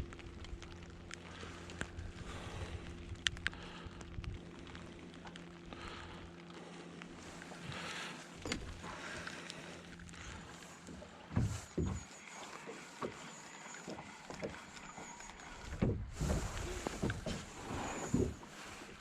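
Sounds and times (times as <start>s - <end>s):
low knocks and thumps in a boat: 7.3s - 19.0s.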